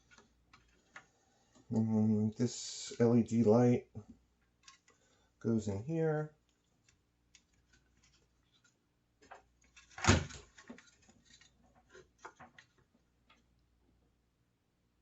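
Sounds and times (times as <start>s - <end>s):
plastic parts clicking and tapping: 0.0s - 1.7s, 4.5s - 5.1s.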